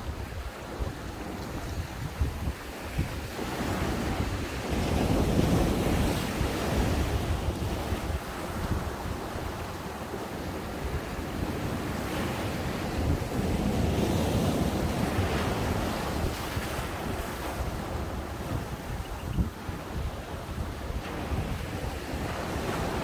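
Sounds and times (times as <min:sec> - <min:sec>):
wind buffeting microphone: 0:00.0 - 0:23.0
ocean waves breaking: 0:02.6 - 0:23.0.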